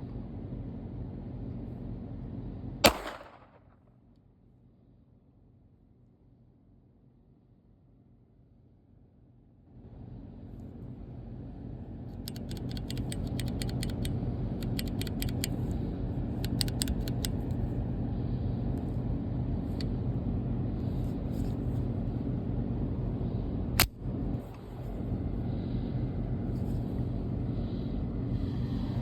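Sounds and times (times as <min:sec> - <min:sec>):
steady low rumble: 0:00.0 - 0:03.8, 0:09.6 - 0:29.0
pistol shot: 0:02.8 - 0:03.7
light metallic clicks: 0:12.2 - 0:15.7, 0:16.4 - 0:17.6.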